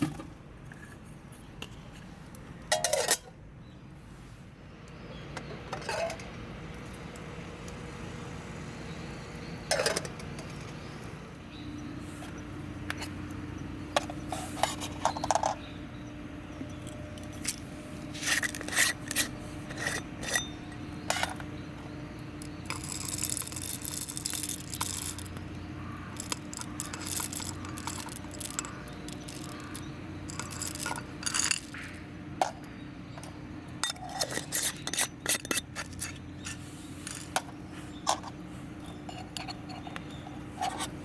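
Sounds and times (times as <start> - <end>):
utensils clinking and scraping: 2.7 - 3.3, 5.5 - 6.4, 9.7 - 10.9, 13.9 - 41.0.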